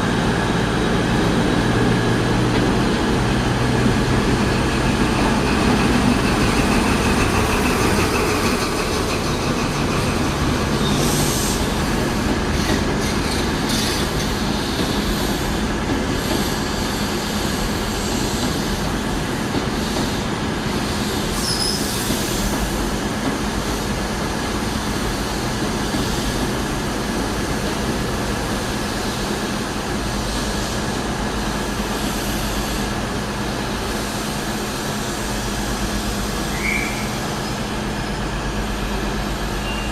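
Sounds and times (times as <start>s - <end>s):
train rumbling: 0.0s - 39.9s
wheel squeal: 21.4s - 22.0s, 39.6s - 39.9s.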